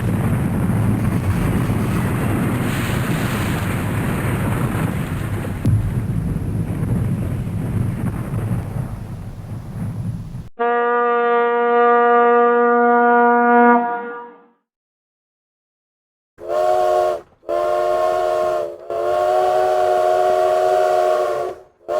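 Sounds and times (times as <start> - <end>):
steady horn blast: 10.6 - 14.6, 16.4 - 21.9
steam locomotive chime whistle: 16.4 - 21.9.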